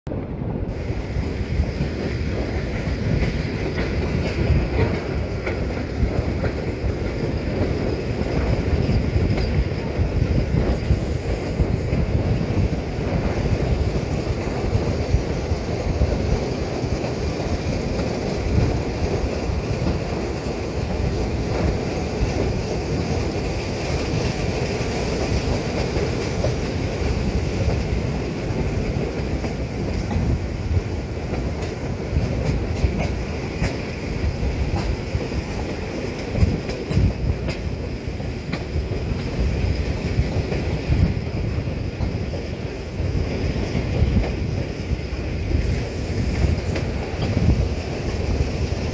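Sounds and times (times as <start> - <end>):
train wheels rumbling on track: 0.1 - 48.9
wheels clicking over rail joints: 14.2 - 45.8.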